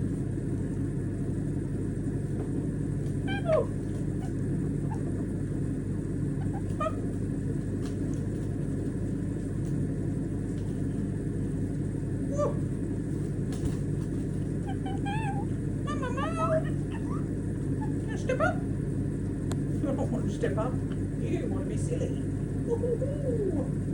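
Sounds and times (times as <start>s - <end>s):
low mechanical hum: 0.0s - 23.9s
parrot chirps: 3.2s - 5.1s, 6.4s - 7.0s, 14.6s - 17.2s.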